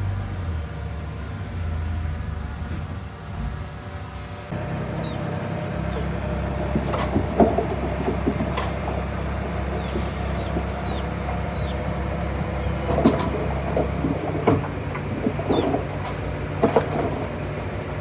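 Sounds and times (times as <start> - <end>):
diesel engine running: 0.0 - 18.0
rock and metal clanks: 5.8 - 17.6.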